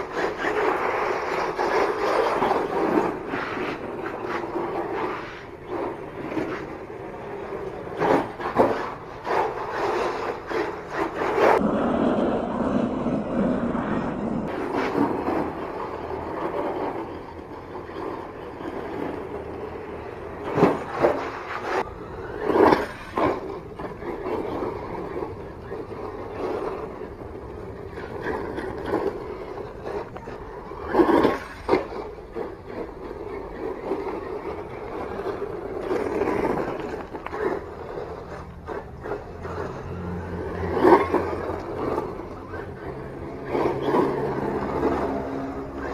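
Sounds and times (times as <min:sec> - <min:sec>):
scraping scrabbling noise: 0:00.0 - 0:11.9, 0:14.4 - 0:45.9
rc truck electric motor: 0:21.3 - 0:45.9.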